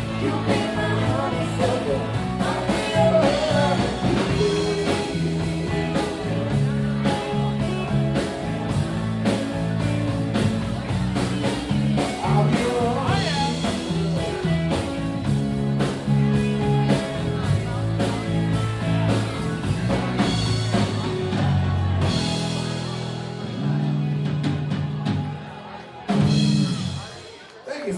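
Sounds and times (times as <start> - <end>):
person singing: 0.0 - 6.7
bass guitar: 0.0 - 27.5
electric guitar: 0.0 - 27.6
drum beat: 1.7 - 16.1.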